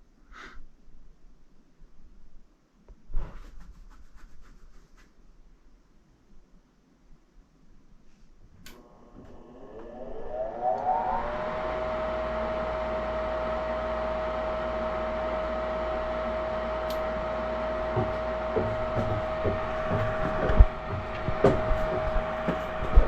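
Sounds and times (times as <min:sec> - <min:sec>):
furnace fan motor whine: 0:08.6 - 0:23.0.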